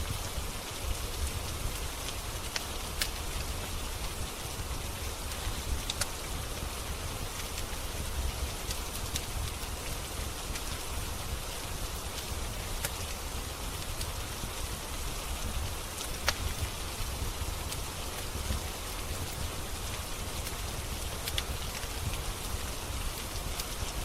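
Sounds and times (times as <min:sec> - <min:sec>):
fireplace crackling: 0:00.0 - 0:24.0
steady rain: 0:00.0 - 0:24.0.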